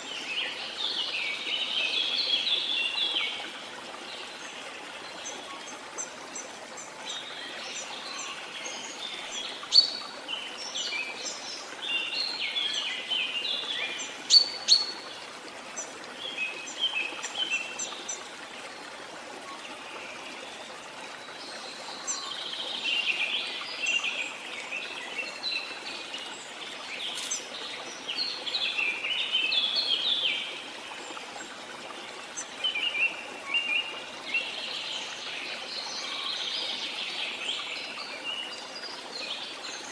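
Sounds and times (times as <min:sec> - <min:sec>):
flowing water: 0:00.0 - 0:39.9
birds chirping and trilling: 0:05.2 - 0:15.2.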